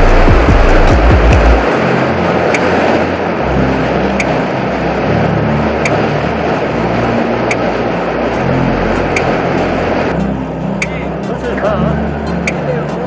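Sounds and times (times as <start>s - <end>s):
background music with bass and beat: 0.0s - 3.0s, 8.3s - 13.0s.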